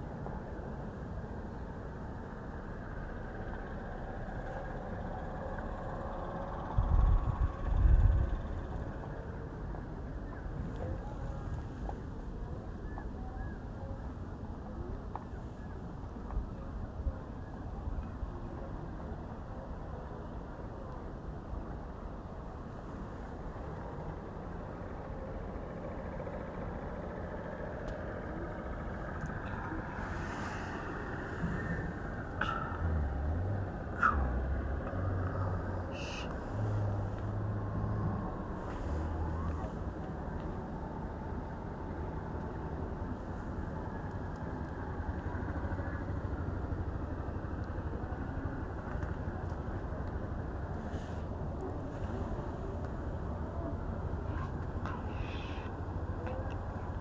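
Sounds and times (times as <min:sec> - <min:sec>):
vehicle engine running: 0:21.3 - 0:57.0.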